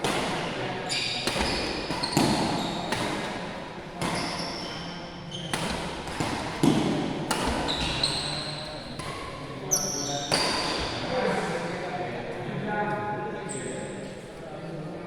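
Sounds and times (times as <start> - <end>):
racket hitting shuttlecock: 0.0 - 9.3
shoes squeaking on court floor: 0.8 - 3.3, 4.0 - 6.7, 7.4 - 10.9.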